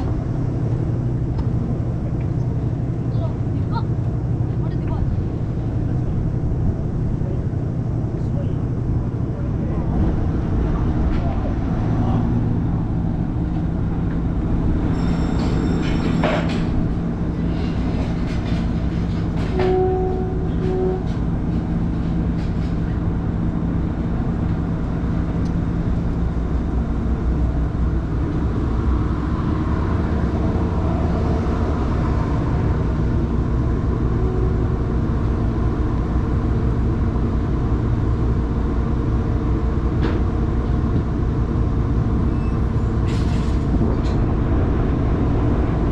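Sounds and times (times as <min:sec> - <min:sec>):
low engine drone: 0:00.0 - 0:45.9
brief tone: 0:19.5 - 0:21.1, 0:42.3 - 0:42.7.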